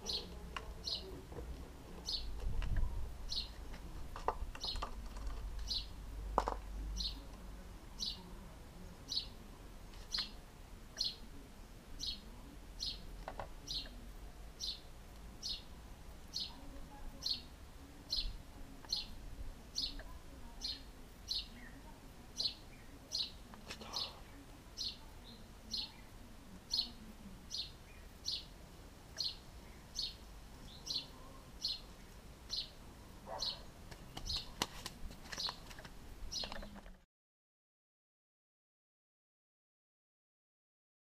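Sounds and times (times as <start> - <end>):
bird chirping: 0.0 - 1.2, 2.0 - 2.4, 3.2 - 3.6, 4.6 - 6.0, 6.9 - 7.3, 8.0 - 8.3, 9.1 - 9.4, 10.0 - 10.4, 11.0 - 11.3, 12.0 - 14.0, 14.6 - 17.5, 18.1 - 26.1, 26.7 - 34.6, 35.3 - 35.7, 36.3 - 36.9.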